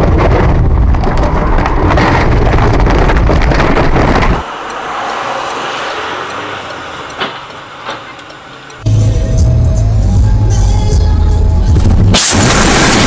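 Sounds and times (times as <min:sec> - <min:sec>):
rattles and knocks: 0:00.0 - 0:04.4
car road and engine noise: 0:00.0 - 0:13.0.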